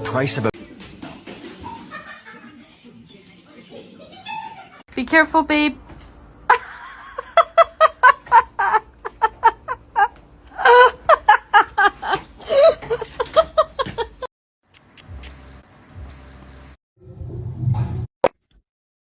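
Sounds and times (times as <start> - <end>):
person laughing: 6.5 - 14.3.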